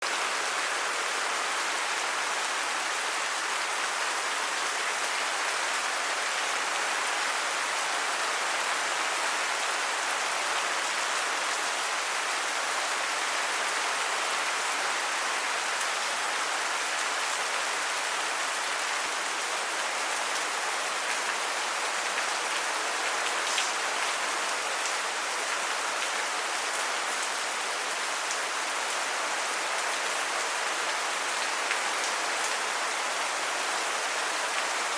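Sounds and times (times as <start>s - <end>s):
rain pattering on surfaces: 19.9s - 27.4s.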